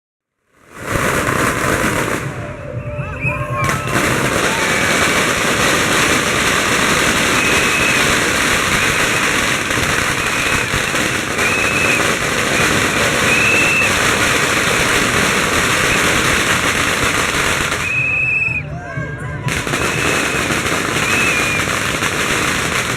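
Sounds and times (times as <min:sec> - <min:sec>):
firecrackers crackling: 0:00.4 - 0:18.7, 0:19.4 - 0:22.9
high whistle-like tones: 0:02.3 - 0:03.9, 0:07.0 - 0:14.6, 0:15.6 - 0:16.4, 0:17.5 - 0:21.9.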